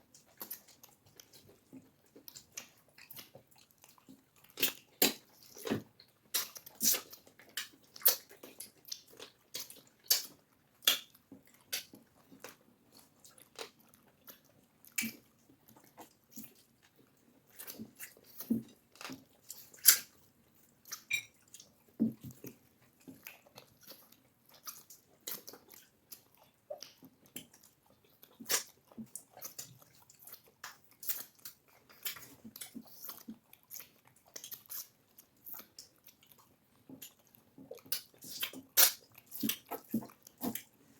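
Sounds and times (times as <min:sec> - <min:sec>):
chewing: 0:00.0 - 0:40.9
mouth clicks and smacks: 0:04.0 - 0:16.7, 0:20.8 - 0:40.8.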